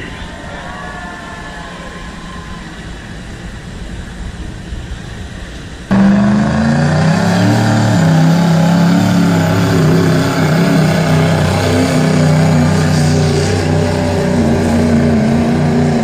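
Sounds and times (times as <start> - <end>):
diesel engine rumbling low: 1.6 - 16.0
diesel engine at high revs: 5.9 - 16.0.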